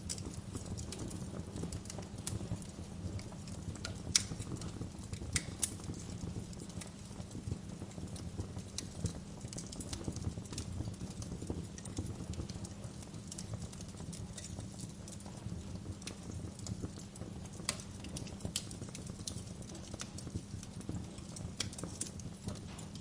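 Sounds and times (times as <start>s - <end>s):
fire crackling and popping: 0.0s - 23.0s
fire flames rumbling: 0.0s - 23.0s.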